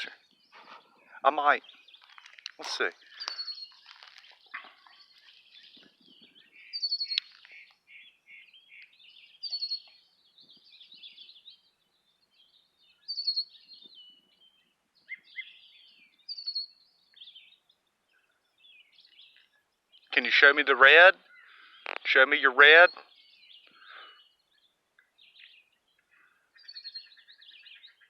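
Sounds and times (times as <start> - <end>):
chattering bird calls: 0.0 - 11.4, 19.1 - 24.4
blackbird singing high phrase: 0.0 - 28.0.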